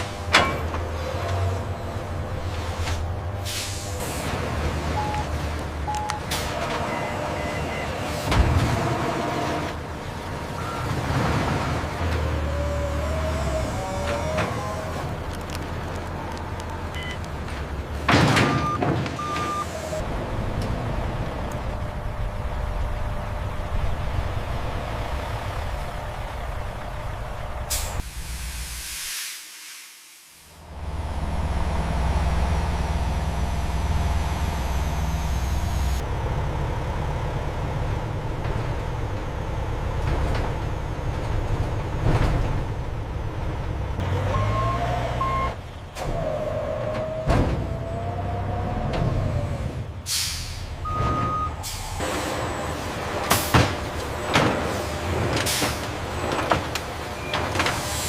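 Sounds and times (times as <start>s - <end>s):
low mechanical rumble: 0.0s - 7.4s, 20.0s - 28.6s, 30.6s - 44.0s
air brake hisses: 3.4s - 4.2s, 50.1s - 50.8s.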